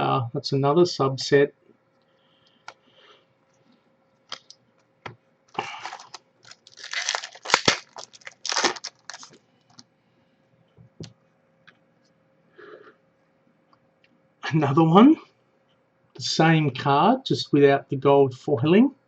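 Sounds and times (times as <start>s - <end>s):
foil wrapper tearing and crinkling: 5.6s - 9.4s.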